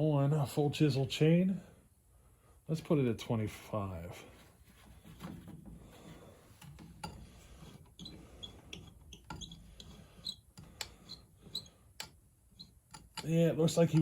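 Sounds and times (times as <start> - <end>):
light clicks of metal parts: 6.5 - 14.0.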